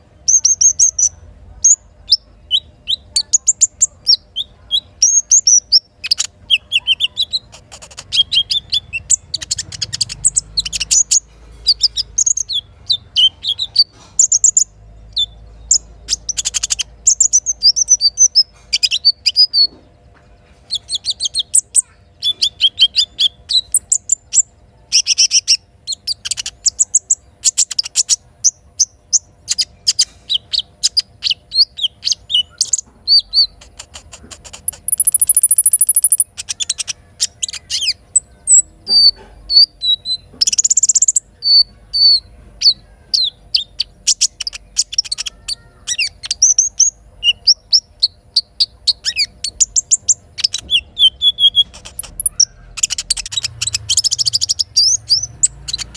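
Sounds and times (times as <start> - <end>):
bird rapid high chirps: 0.0 - 19.9, 20.6 - 55.9
bird high trill: 29.5 - 55.9.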